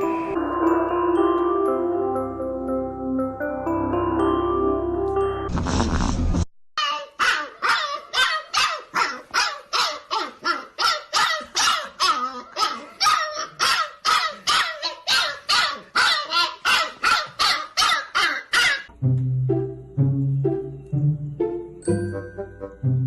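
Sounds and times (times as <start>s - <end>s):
dog barking: 6.8s - 18.9s.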